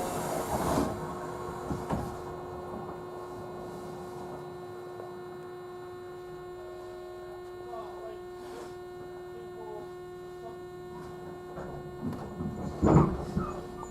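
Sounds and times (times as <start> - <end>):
sliding doors closing thump: 0.0 - 2.4
train electrical hum: 0.0 - 13.9.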